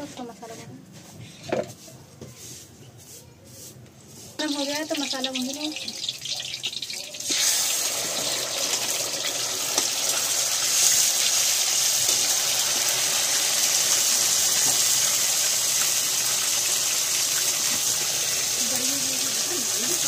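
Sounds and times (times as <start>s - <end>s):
spice paste sizzling in hot oil: 4.4s - 20.0s.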